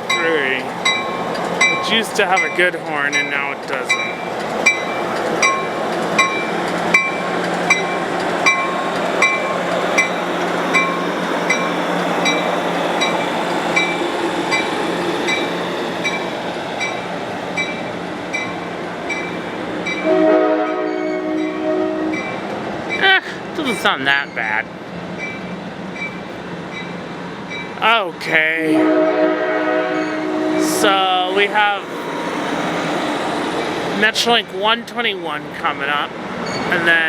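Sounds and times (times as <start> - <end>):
crossing bell dinging: 0.0 - 23.1, 29.9 - 31.8
train rolling past: 0.0 - 37.0
locomotive horn chord: 20.0 - 22.2, 28.8 - 31.1.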